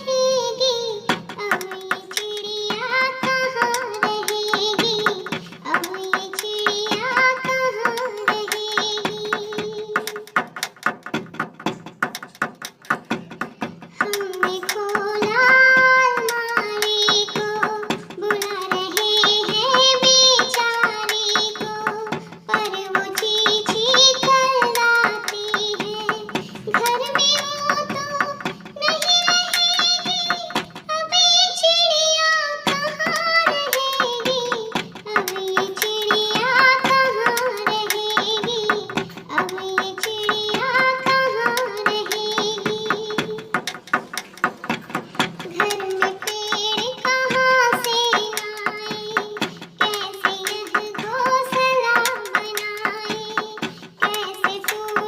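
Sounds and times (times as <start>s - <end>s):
percussive beat: 0.0s - 55.0s.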